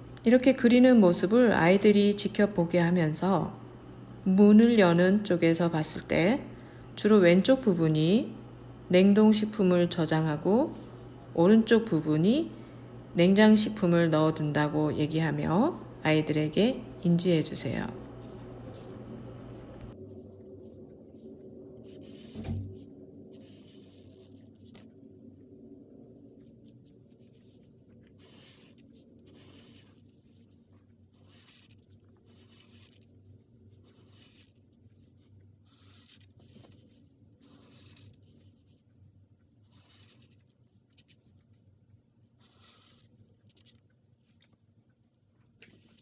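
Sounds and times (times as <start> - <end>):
pen scratching on paper: 0.0 - 2.5, 9.7 - 12.4, 13.4 - 19.0, 20.0 - 25.0, 26.4 - 38.9, 39.5 - 41.3, 42.2 - 44.4, 45.6 - 46.0
soft thump: 22.4 - 22.8.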